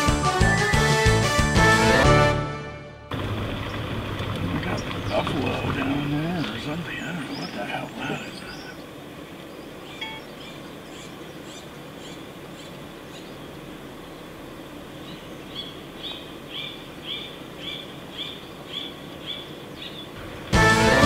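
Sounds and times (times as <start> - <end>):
loud background music: 0.0 - 3.0, 20.2 - 21.0
outdoor background noise: 3.0 - 21.0
bird calling repeated note: 6.9 - 13.4.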